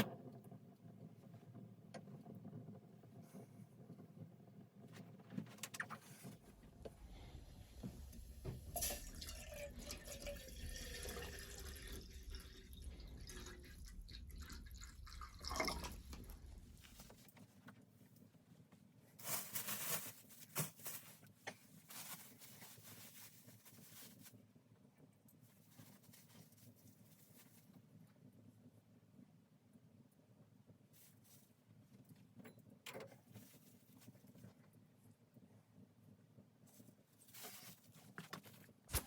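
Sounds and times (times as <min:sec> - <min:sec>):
water being poured: 0:07.6 - 0:16.9
water dripping: 0:08.2 - 0:16.8.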